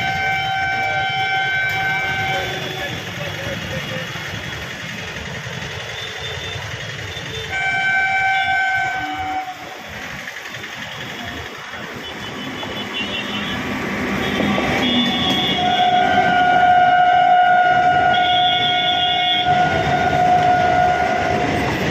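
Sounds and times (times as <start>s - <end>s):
train horn blast: 0.0s - 3.0s, 7.3s - 9.9s, 12.1s - 21.9s
train running noise: 0.0s - 21.9s.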